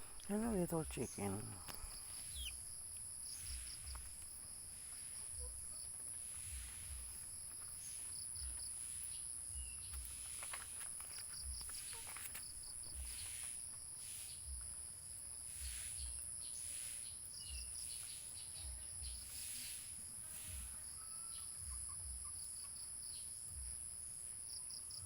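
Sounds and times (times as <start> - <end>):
crickets chirping: 0.0 - 25.0
insects droning: 0.0 - 25.0
faint clicks and rustles: 9.9 - 13.9.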